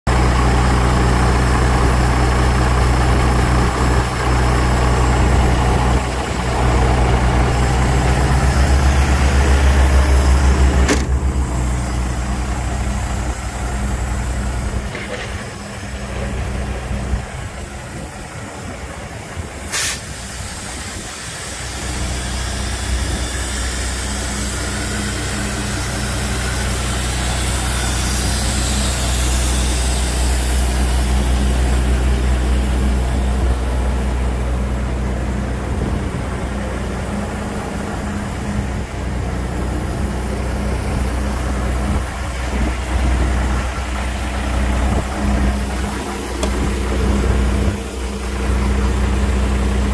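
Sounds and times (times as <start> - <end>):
diesel truck engine idling: 0.1 - 49.9.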